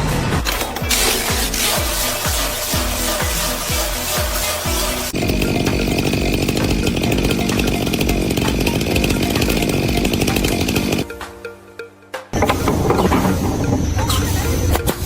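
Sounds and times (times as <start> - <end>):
background music: 0.0 - 15.0
power tool running: 0.8 - 11.1.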